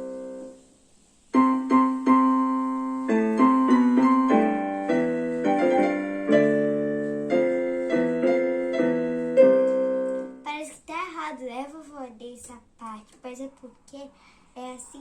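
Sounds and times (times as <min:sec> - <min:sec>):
slow piano melody: 0:00.0 - 0:10.5.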